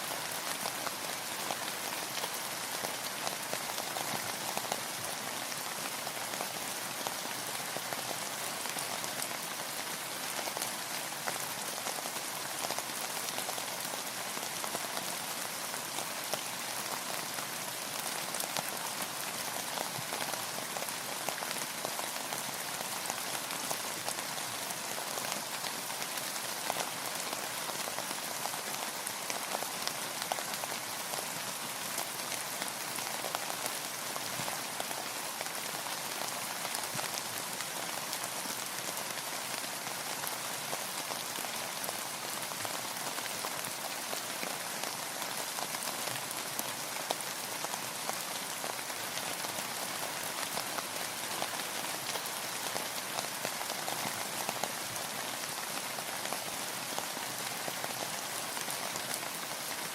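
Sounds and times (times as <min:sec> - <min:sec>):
rain pattering on a surface: 0:00.0 - 0:59.9.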